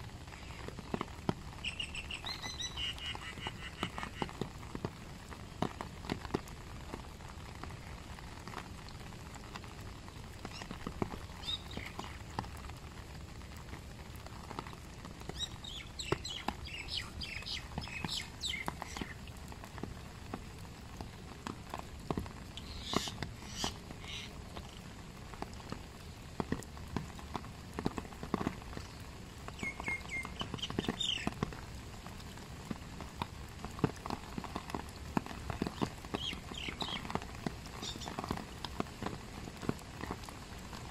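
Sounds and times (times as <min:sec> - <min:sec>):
steady rain: 0:00.0 - 0:40.9
small bird chirping: 0:15.4 - 0:19.2, 0:22.6 - 0:24.3, 0:29.6 - 0:31.3, 0:36.2 - 0:37.1.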